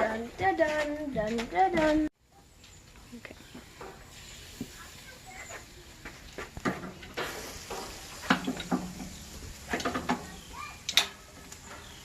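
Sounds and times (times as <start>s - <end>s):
utensils clinking at grill: 6.4s - 12.0s.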